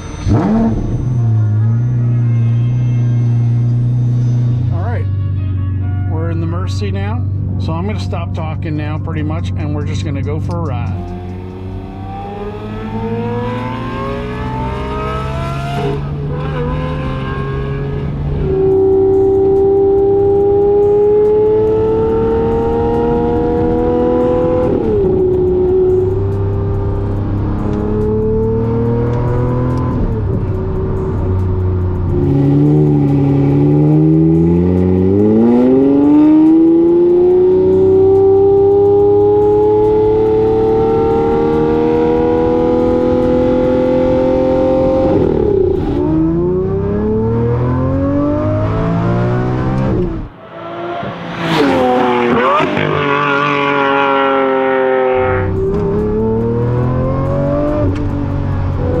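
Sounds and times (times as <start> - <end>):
car engine revving: 0.0 - 5.0, 6.2 - 59.0.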